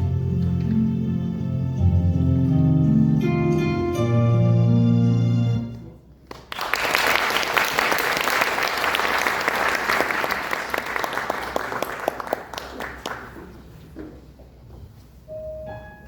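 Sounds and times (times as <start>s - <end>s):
audience applauding: 6.3s - 13.7s.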